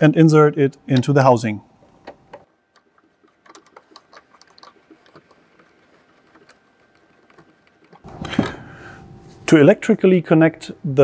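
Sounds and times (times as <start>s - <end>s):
small clicks of plumbing parts: 2.0s - 5.7s.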